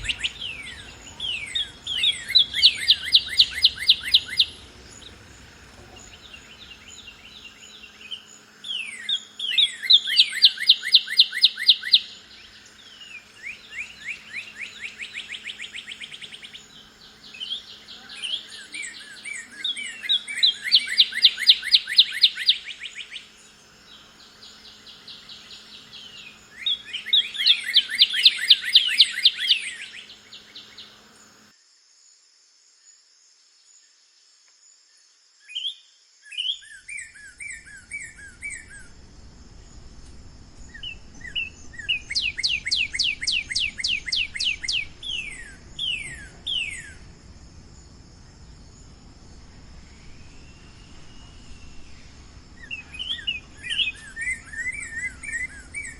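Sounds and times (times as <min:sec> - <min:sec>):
bird whistles and trill: 0:00.0 - 0:12.2, 0:17.2 - 0:23.3, 0:25.4 - 0:30.9, 0:40.7 - 0:47.1, 0:49.8 - 0:55.9
faint high bird chirps: 0:00.0 - 0:31.5, 0:34.8 - 0:55.9.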